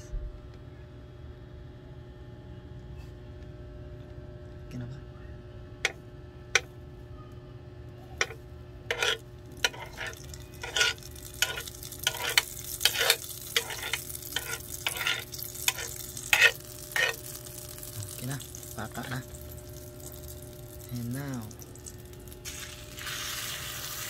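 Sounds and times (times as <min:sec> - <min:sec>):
food sizzling in oil: 0:08.2 - 0:24.0.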